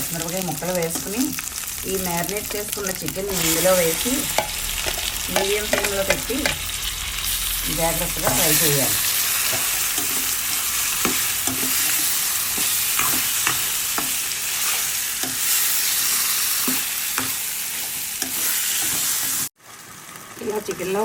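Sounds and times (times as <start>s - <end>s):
chicken sizzling in hot oil: 0.0s - 21.0s
spatula scraping a pan: 8.2s - 19.5s.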